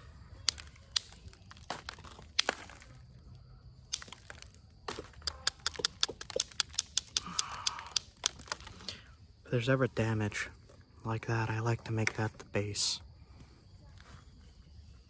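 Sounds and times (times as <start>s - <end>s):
flintknapping stone clicks: 0.4s - 2.8s, 3.9s - 8.9s.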